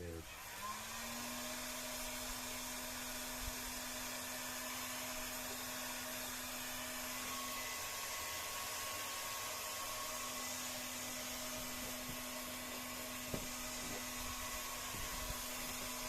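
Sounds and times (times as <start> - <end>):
heat gun motor whine: 0.0 - 16.0.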